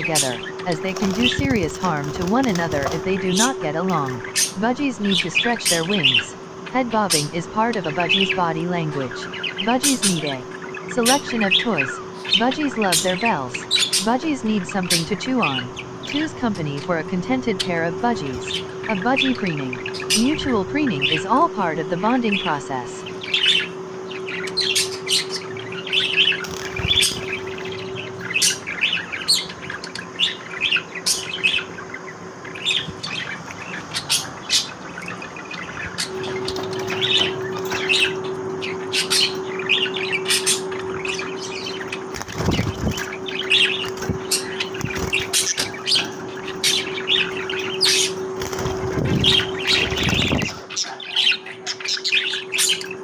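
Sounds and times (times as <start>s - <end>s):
budgerigars chattering: 0.0s - 53.0s
steady low hum: 0.0s - 53.0s.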